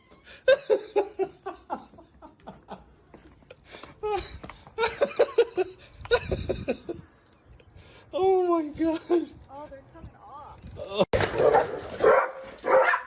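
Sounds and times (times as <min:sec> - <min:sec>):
person laughing: 0:04.0 - 0:07.0.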